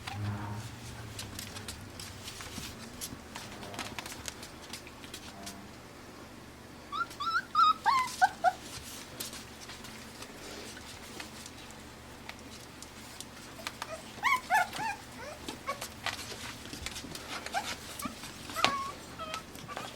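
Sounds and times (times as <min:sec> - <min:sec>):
faint ticks and scuffles: 0:00.0 - 0:05.6, 0:08.0 - 0:19.9
puppies yipping and squealing: 0:06.9 - 0:08.8, 0:13.5 - 0:16.4, 0:17.3 - 0:19.9.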